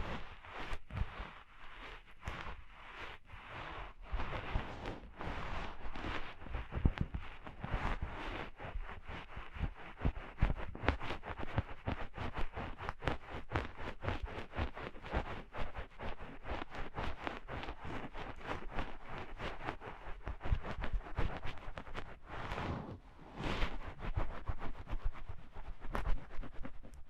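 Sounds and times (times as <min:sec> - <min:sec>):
ear picks scratching: 0:20.6 - 0:27.0.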